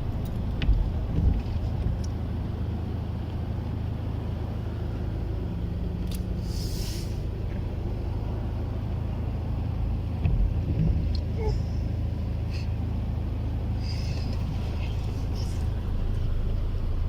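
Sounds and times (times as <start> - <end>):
car driving on wet road: 0.0 - 17.0
short hiss: 6.4 - 7.2.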